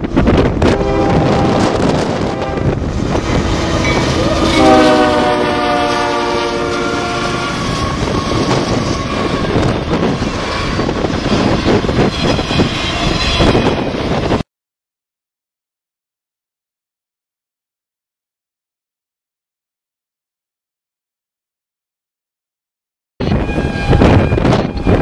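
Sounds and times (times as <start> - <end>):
train engines rumbling: 0.0 - 14.4, 23.2 - 25.0
train horn blast: 0.6 - 14.0, 23.2 - 25.0.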